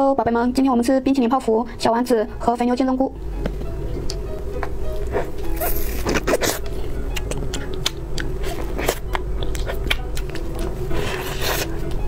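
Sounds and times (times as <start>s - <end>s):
chewing with crunches: 4.9s - 12.0s.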